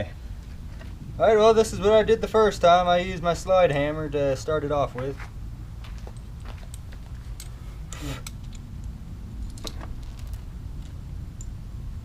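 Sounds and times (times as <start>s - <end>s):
steady low hum: 0.0s - 12.0s
metallic clicks of hand tools: 7.4s - 11.6s.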